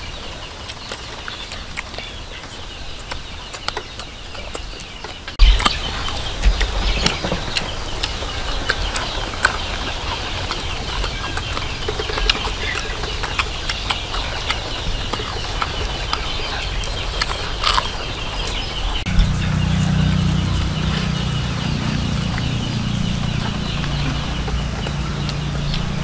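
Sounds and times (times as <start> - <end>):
crunching and chewing crispy food: 0.4 - 26.0
low rumble: 5.4 - 26.0.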